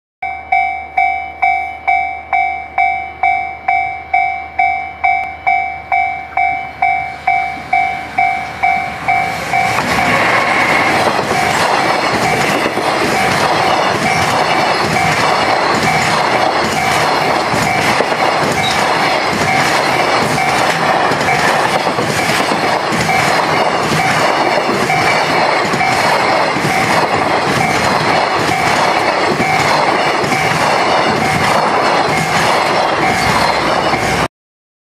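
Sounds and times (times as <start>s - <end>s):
level crossing bell ringing: 0.2s - 10.2s
freight train wheels on rail: 0.2s - 34.3s.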